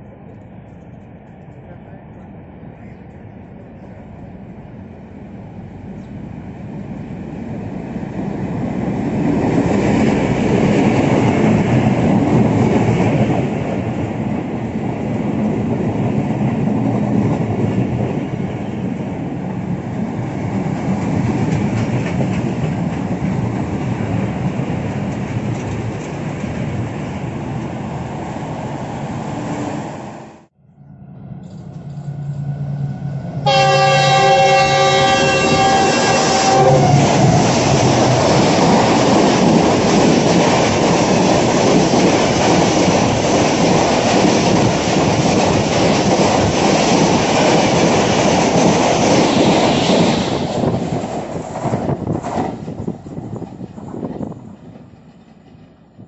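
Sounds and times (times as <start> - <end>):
train rumbling and clattering past: 0.0 - 56.0
locomotive multi-tone horn: 33.4 - 37.2.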